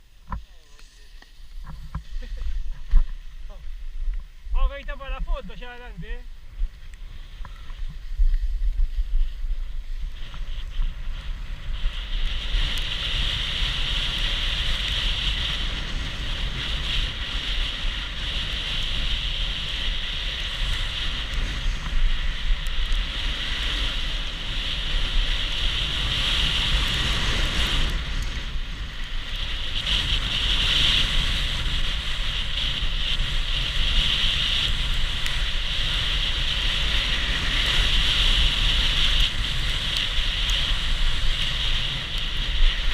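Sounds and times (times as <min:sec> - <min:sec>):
high hiss: 0:00.0 - 0:16.1
skis hissing on snow: 0:00.0 - 0:42.9
wind rushing over microphone: 0:00.0 - 0:42.9.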